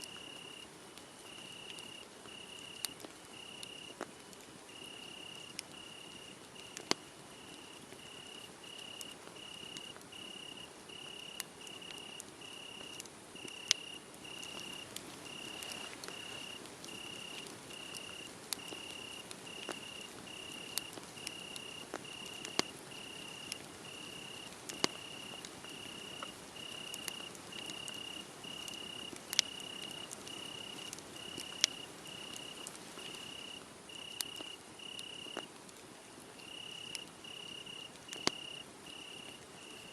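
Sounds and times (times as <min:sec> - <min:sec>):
cricket chirping: 0:00.0 - 0:04.0, 0:04.7 - 0:35.5, 0:36.4 - 0:39.9
wood fire crackling: 0:00.0 - 0:39.9.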